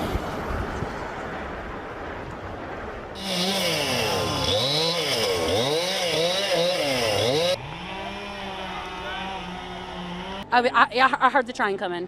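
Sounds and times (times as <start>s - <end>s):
chainsaw engine revving: 3.2s - 10.4s
steady engine drone: 3.2s - 10.8s.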